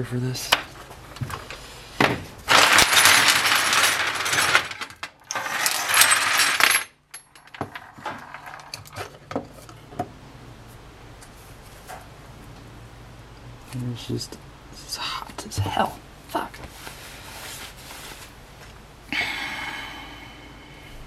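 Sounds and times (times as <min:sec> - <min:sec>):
metal tools rattling and scraping: 0:02.5 - 0:09.8.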